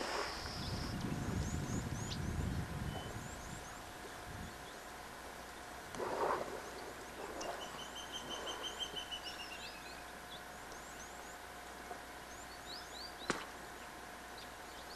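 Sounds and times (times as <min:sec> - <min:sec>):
birds chirping: 0:00.0 - 0:14.9
bird trilling: 0:07.4 - 0:10.0.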